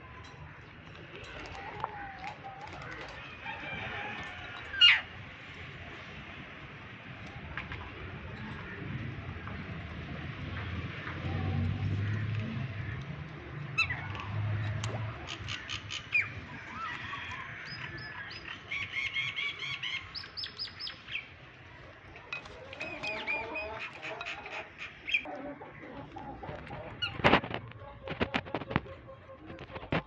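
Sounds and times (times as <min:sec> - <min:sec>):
parrot chirping and calling: 0:22.8 - 0:25.3.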